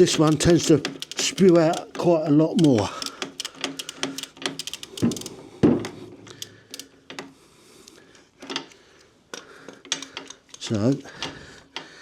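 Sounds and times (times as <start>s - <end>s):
tool clicking on drain plug: 0.0s - 5.3s.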